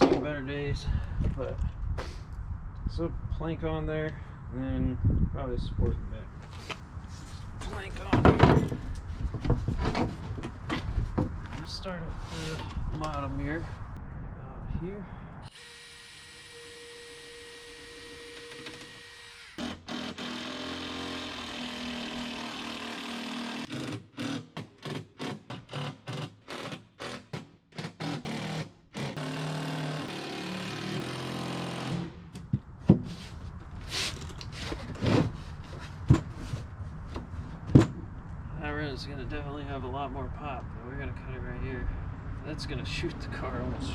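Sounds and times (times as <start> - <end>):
power drill running: 15.5 - 23.7.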